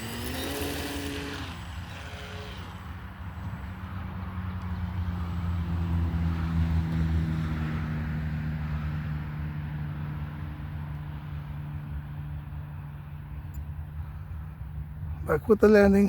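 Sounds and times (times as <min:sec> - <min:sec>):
model plane motor droning: 0:00.0 - 0:06.0.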